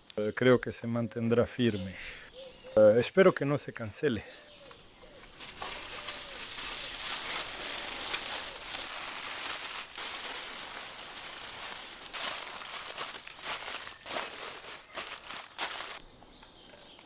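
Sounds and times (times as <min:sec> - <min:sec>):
crackling hiss of cooking meat: 0:05.5 - 0:16.0.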